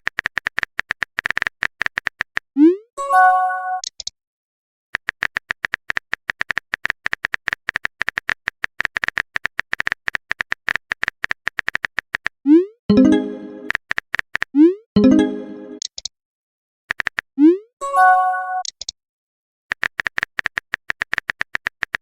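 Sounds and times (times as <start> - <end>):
phone keyboard typing clicks: 0.0 - 2.5, 5.0 - 16.1, 16.9 - 17.3, 19.7 - 22.0
synthesized message alert tone: 12.6 - 13.8, 14.6 - 15.8.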